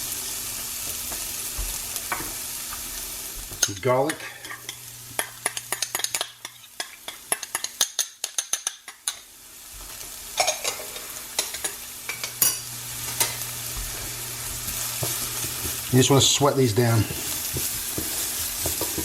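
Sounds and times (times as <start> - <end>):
onions sizzling in oil: 0.0 - 19.0.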